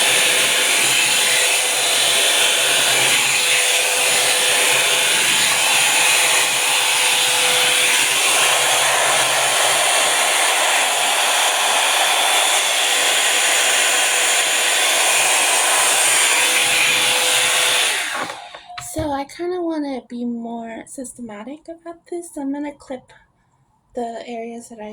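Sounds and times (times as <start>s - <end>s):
hot-air brush hair dryer running: 0.0s - 19.0s.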